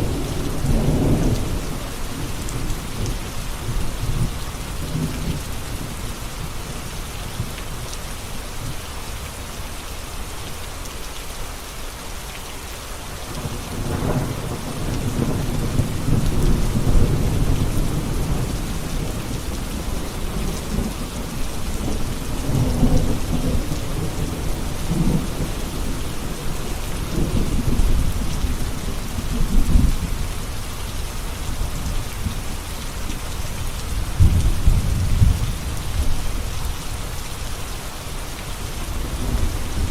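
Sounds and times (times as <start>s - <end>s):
rolling thunder: 0.0s - 4.3s, 33.9s - 36.3s
steady rain: 0.0s - 39.9s.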